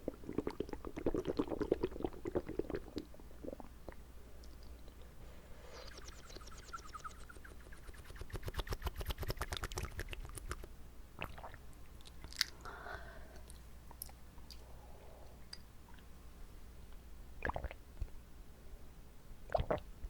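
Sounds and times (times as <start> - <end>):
wet mouth clicks: 7.9 - 12.6.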